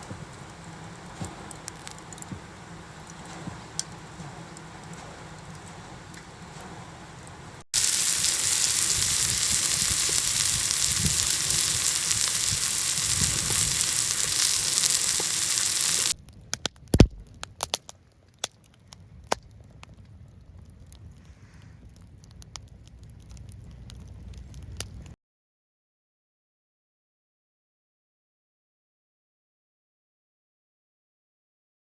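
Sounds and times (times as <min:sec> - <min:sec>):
fire crackling and popping: 0:00.0 - 0:06.3, 0:07.2 - 0:25.2
firewood hissing: 0:07.7 - 0:16.2.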